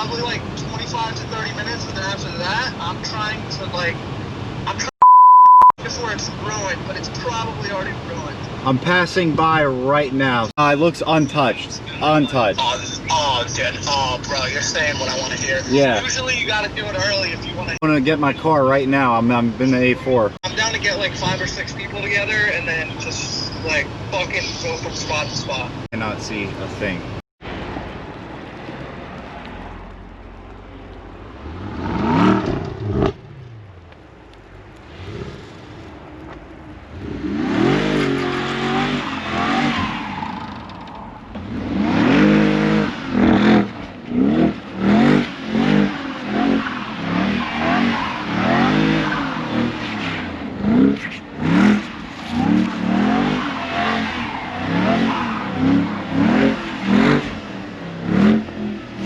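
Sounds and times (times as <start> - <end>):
car engine revving: 31.2 - 59.0.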